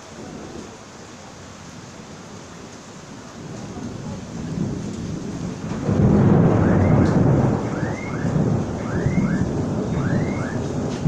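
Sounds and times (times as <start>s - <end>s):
rain hissing: 0.0s - 11.0s
thunder rumbling: 3.1s - 11.0s.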